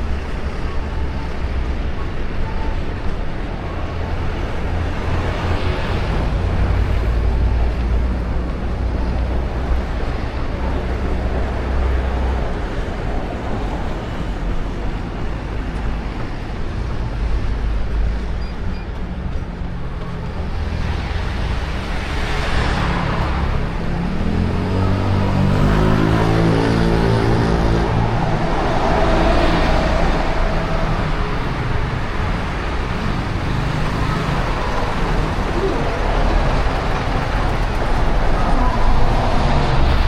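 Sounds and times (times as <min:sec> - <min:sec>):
road traffic rumble: 0:00.0 - 0:40.0
car passing: 0:21.0 - 0:40.0.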